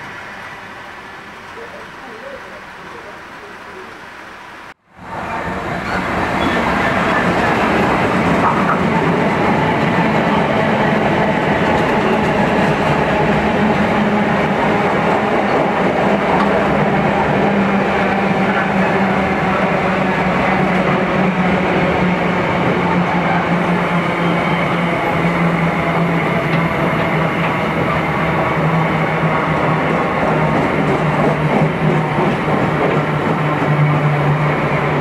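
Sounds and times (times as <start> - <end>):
diesel locomotive passing: 0.0 - 35.0
train wheels clattering on rails: 5.8 - 13.8, 24.4 - 34.5.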